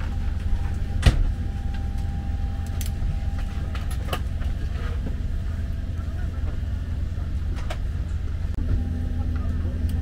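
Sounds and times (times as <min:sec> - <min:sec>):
cabin air supply rumble: 0:00.0 - 0:10.0.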